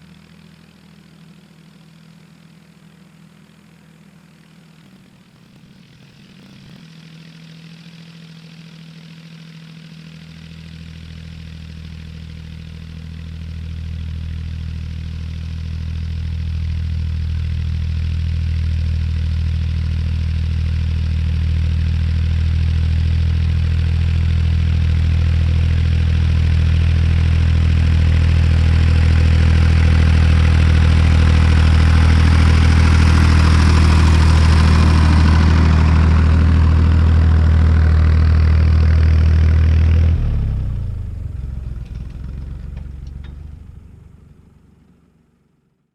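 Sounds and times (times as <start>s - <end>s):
tractor engine running: 4.7s - 45.4s.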